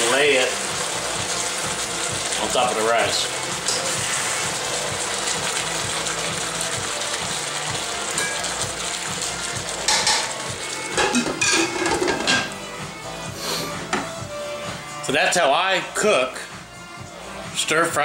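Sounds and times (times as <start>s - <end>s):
chicken sizzling in a pan: 0.0s - 12.3s
metal utensil scraping a pan: 9.8s - 12.6s.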